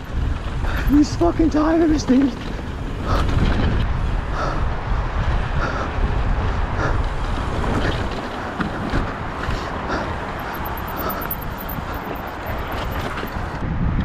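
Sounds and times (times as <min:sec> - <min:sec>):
wind buffeting microphone: 0:00.0 - 0:14.0
bike clicks and knocks: 0:07.0 - 0:13.6.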